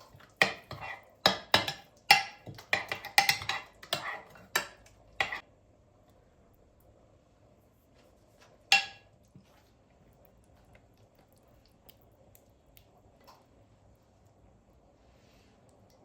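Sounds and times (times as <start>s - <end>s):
utensils tapping and clicking: 0.2s - 5.4s.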